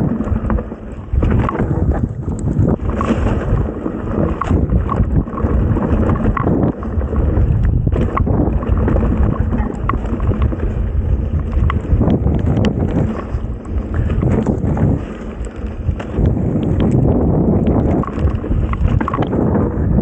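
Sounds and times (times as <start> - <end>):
bike rattling and knocking: 0.0 - 20.0
tyres rumbling on dirt: 0.0 - 20.0
wind buffeting microphone: 0.0 - 20.0.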